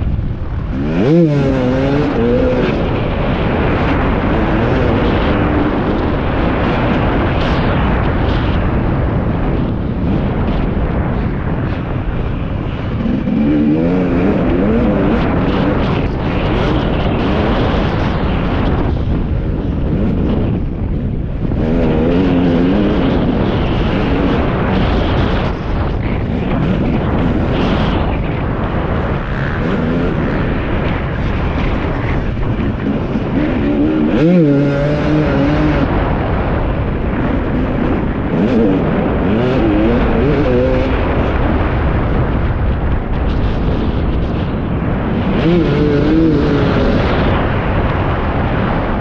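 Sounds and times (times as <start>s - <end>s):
wind on microphone: 0.0s - 49.0s
motocross bike engine revving: 0.4s - 7.9s, 11.4s - 18.7s, 19.4s - 25.5s, 26.2s - 42.1s, 45.0s - 47.4s.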